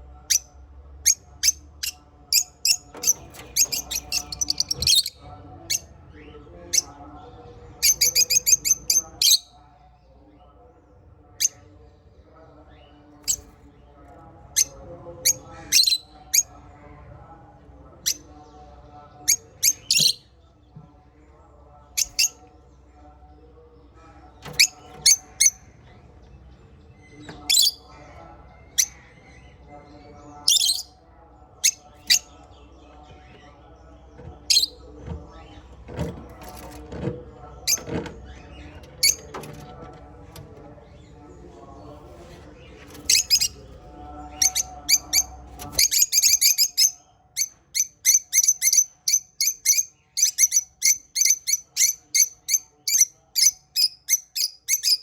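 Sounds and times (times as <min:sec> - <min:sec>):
soft bird chatter: 0:00.0 - 0:55.0
parrots chirping: 0:01.0 - 0:05.8, 0:30.4 - 0:31.0, 0:43.0 - 0:43.8, 0:44.4 - 0:55.0.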